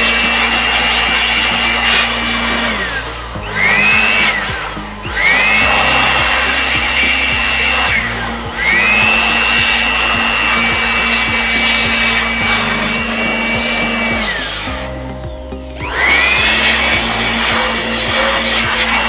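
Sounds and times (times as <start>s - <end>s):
electric blower whining: 0.0s - 19.0s.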